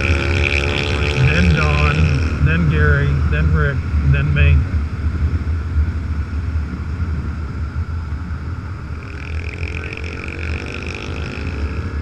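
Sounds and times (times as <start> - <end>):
higher engine tone rising: 0.0 - 4.8, 8.8 - 12.0
motorcycle engine rumble: 0.0 - 12.0.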